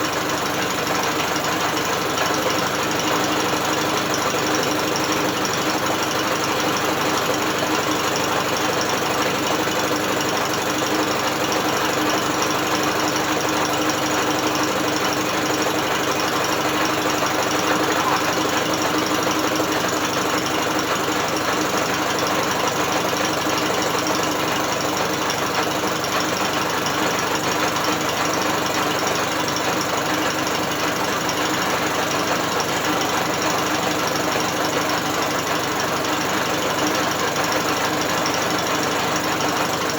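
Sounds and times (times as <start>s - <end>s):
outboard motor whirring and clattering: 0.0s - 39.9s.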